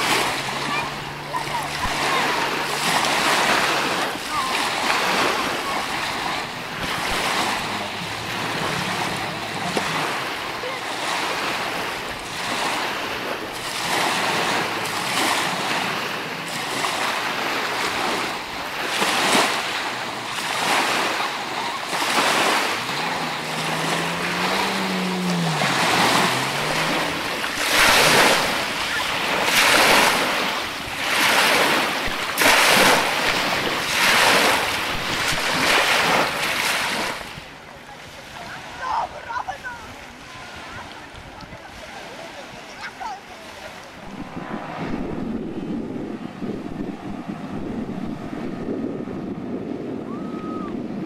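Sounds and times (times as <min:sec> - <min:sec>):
small waves washing onto shore: 0:00.0 - 0:51.0
low droning tone: 0:21.2 - 0:28.9, 0:44.0 - 0:51.0
wind on the microphone: 0:40.0 - 0:51.0.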